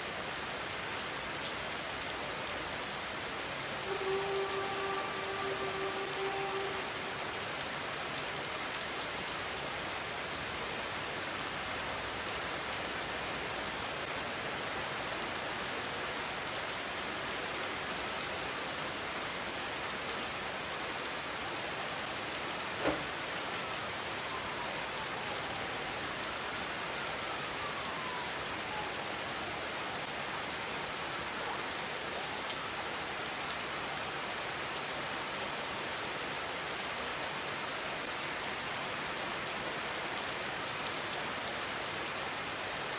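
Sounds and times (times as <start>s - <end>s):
steady rain falling: 0.0s - 42.9s
faint falling tones: 3.8s - 7.6s.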